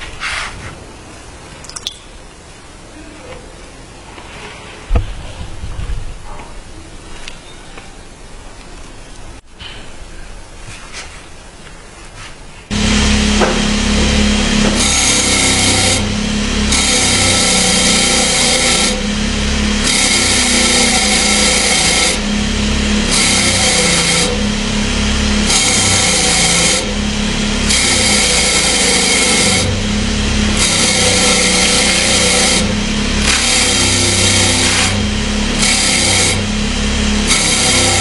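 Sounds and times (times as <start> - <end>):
power grinder motor hum: 12.7 - 38.0.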